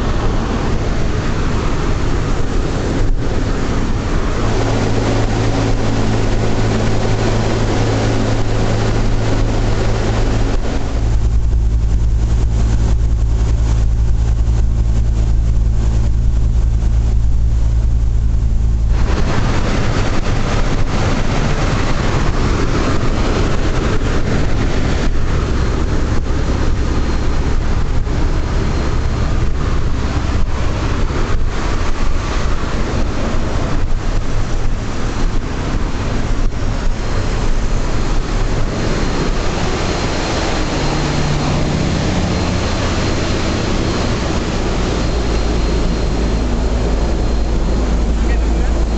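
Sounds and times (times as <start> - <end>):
aircraft radial engines droning: 0.0 - 48.9.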